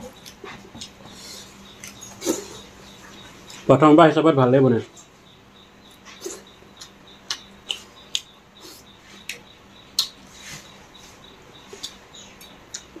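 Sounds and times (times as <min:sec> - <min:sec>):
person chewing and lip-smacking: 0:00.0 - 0:02.8, 0:05.9 - 0:10.2, 0:11.6 - 0:13.0.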